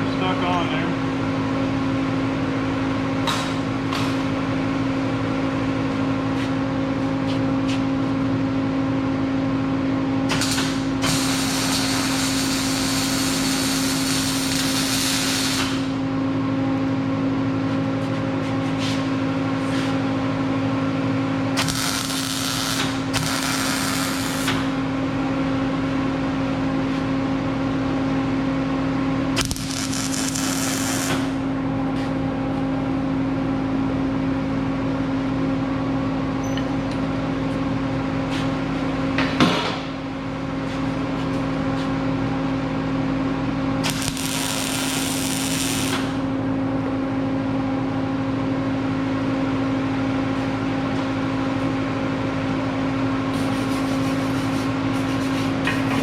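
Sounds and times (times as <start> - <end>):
welding machine hum: 10.2 - 16.9, 21.4 - 27.0, 28.1 - 32.6, 42.5 - 46.8, 50.3 - 56.0
welding arc crackling: 10.4 - 15.9, 21.6 - 24.7, 29.4 - 31.4, 43.8 - 46.2.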